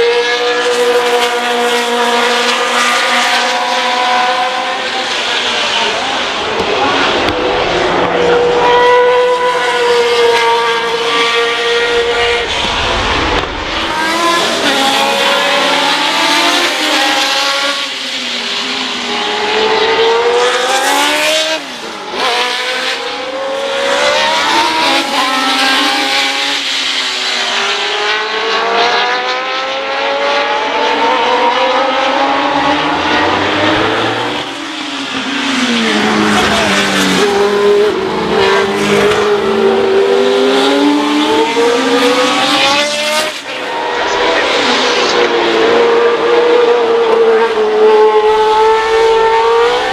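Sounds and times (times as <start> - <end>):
race cars passing at high revs: 0.0 - 49.9.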